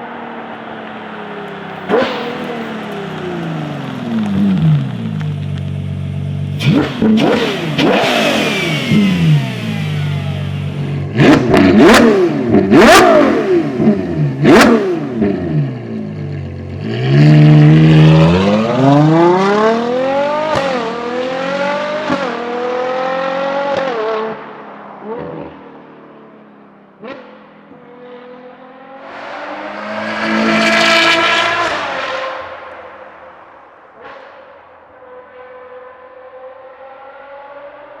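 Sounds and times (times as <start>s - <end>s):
car accelerating through upshifts: 0.0s - 26.4s, 27.0s - 33.1s, 35.0s - 38.0s
car engine revving: 0.1s - 24.5s, 27.0s - 38.0s
exhaust cracks: 1.6s - 15.4s.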